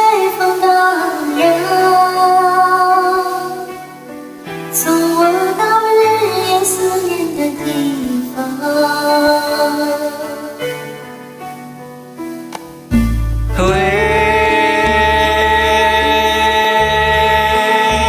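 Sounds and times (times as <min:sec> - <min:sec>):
instrumental accompaniment: 0:10.2 - 0:18.0
choir singing slow song: 0:13.6 - 0:18.0.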